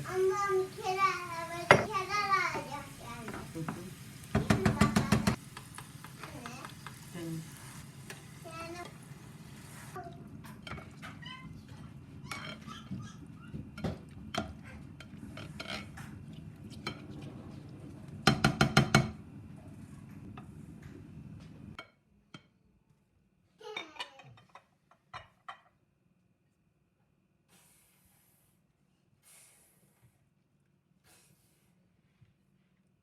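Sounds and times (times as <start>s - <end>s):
cookware and utensils clinking: 0.1s - 9.1s, 10.4s - 19.2s, 23.6s - 25.8s.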